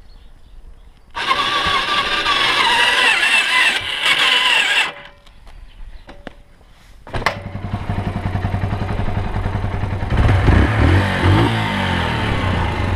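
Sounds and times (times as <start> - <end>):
motorcycle engine starting and running: 1.2 - 5.2, 7.1 - 12.9.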